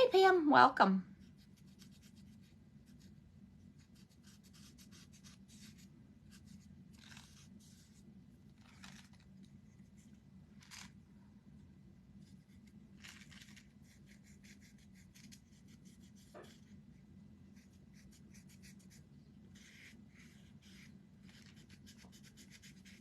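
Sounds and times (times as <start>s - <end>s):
low steady hum: 0.0s - 23.0s
hands scratching wooden pieces: 12.5s - 16.6s.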